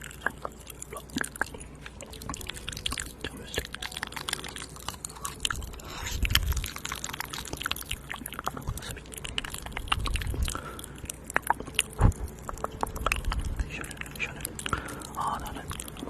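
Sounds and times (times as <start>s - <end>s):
wet mouth clicks and smacks: 0.0s - 16.0s.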